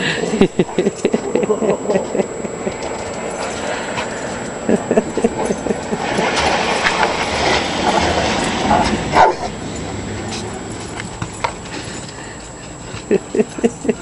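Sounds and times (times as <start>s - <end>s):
dog barking: 9.1s - 9.6s.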